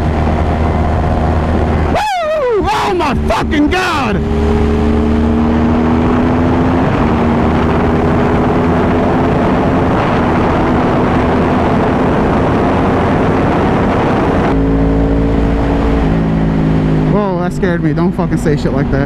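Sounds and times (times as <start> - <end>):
wind rush on microphone: 0.0 - 2.6, 4.2 - 14.7
motorcycle engine at high revs: 0.0 - 19.0.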